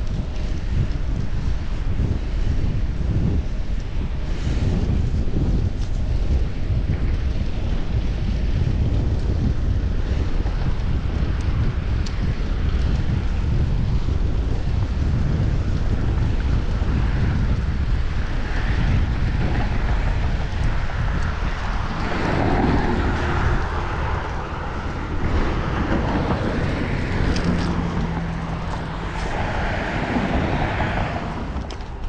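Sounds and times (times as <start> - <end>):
road noise: 0.0 - 32.0
wind buffeting microphone: 0.0 - 32.0
traffic passing: 16.9 - 32.0.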